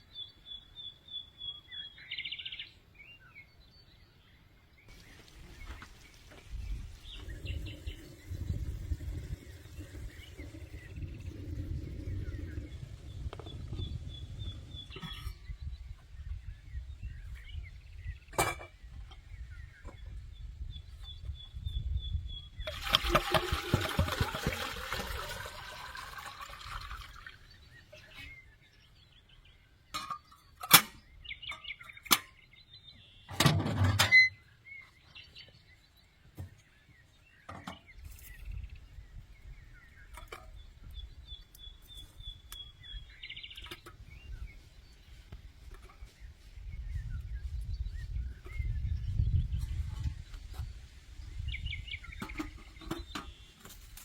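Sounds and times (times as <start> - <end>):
small birds singing: 0.0 - 54.0
liquid pouring: 5.0 - 12.0, 22.7 - 27.6
low wind rumble: 5.0 - 27.8, 37.9 - 53.6.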